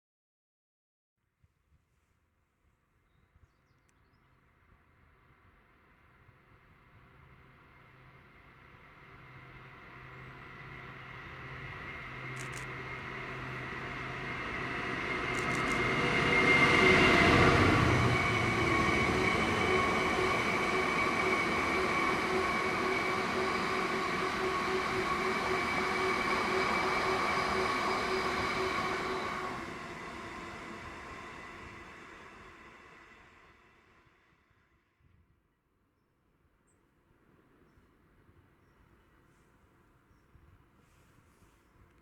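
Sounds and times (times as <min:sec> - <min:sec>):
train passing: 0:04.5 - 0:34.6.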